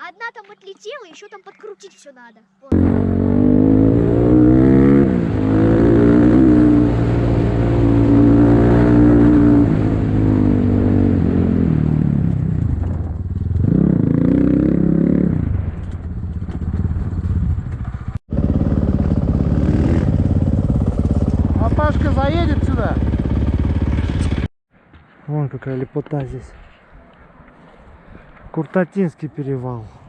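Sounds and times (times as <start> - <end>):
motorcycle engine revving: 2.7 - 24.5
engine clatter: 15.5 - 24.5.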